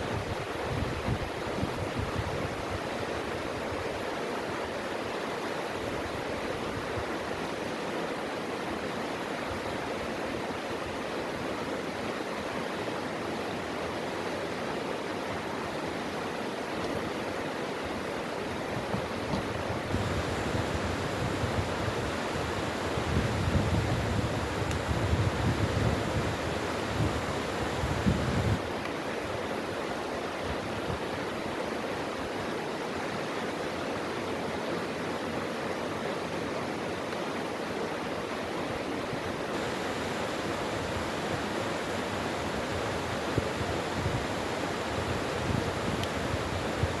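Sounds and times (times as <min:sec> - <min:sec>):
wind rumble on microphone: 0:00.0 - 0:02.8, 0:18.6 - 0:28.7, 0:39.2 - 0:47.0
stream flowing: 0:00.0 - 0:47.0.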